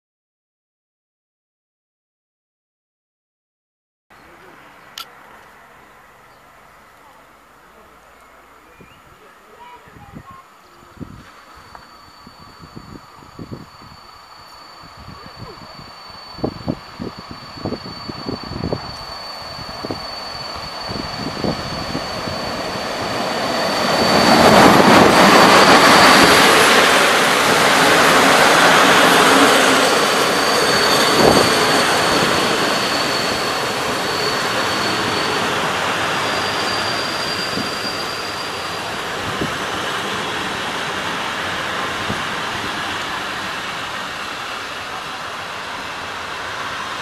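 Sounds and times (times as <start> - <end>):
train passing on rails: 4.2 - 47.0
high wheel squeal: 10.6 - 47.0.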